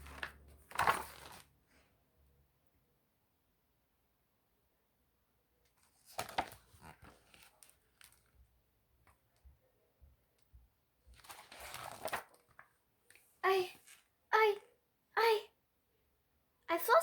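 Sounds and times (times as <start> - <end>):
paper pages rustling: 0.0 - 1.6, 5.7 - 8.4, 11.1 - 14.1.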